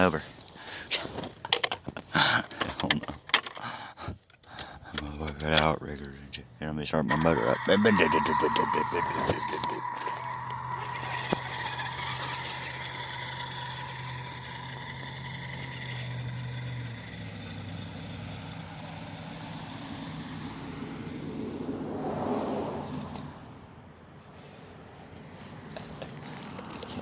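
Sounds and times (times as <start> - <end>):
rough burst of noise: 7.1 - 16.2
toy truck motor whining: 7.1 - 20.6, 25.9 - 27.0.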